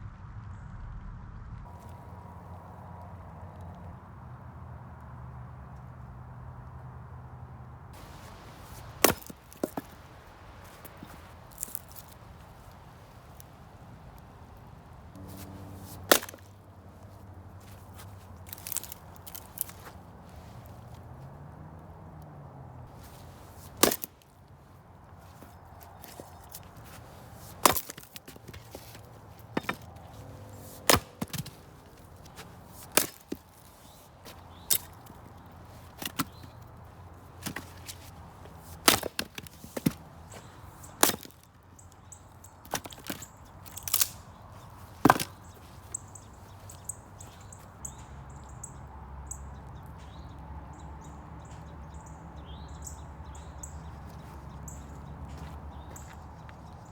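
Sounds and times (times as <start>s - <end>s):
wood cracking apart: 8.0s - 21.1s, 22.8s - 42.0s, 42.6s - 47.4s
maul chopping firewood: 8.0s - 21.2s, 22.8s - 47.5s.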